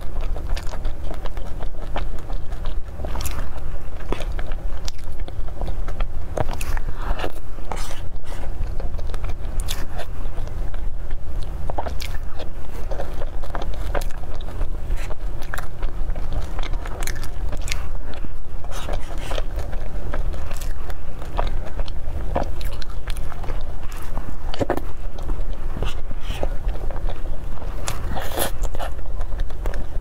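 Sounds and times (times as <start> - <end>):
steady low hum: 0.0 - 30.0
wet chewing and mouth sounds: 0.0 - 30.0
spoon scraping through cake: 6.4 - 10.5.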